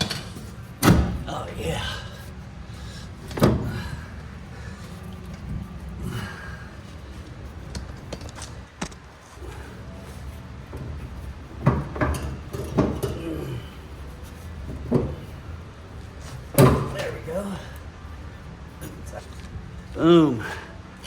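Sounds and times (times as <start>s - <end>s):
metal clunks and knocks: 10.7s - 13.2s, 14.6s - 15.4s, 16.3s - 17.2s.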